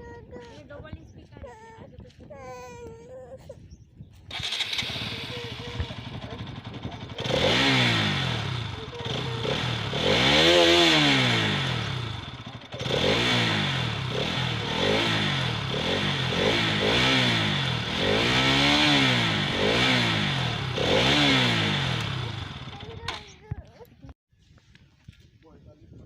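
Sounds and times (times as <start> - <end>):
motorcycle engine revving: 4.3 - 23.7.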